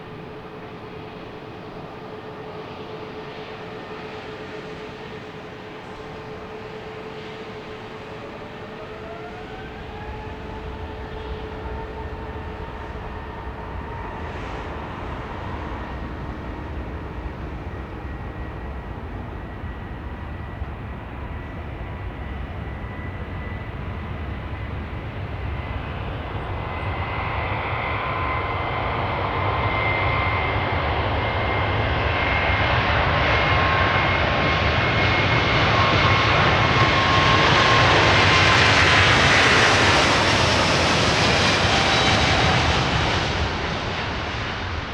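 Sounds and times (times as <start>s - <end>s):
jet engines roaring with fan whine: 0.0s - 44.9s.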